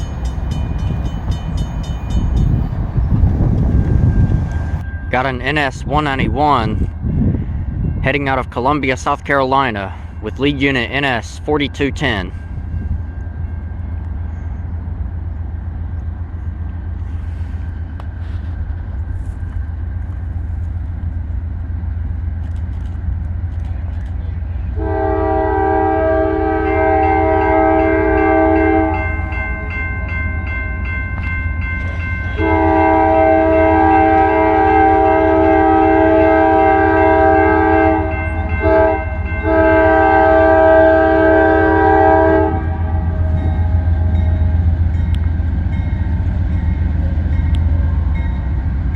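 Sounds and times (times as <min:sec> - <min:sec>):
diesel locomotive rumbling: 0:00.0 - 0:48.9
locomotive air horn blasts: 0:24.8 - 0:29.2, 0:32.3 - 0:44.7.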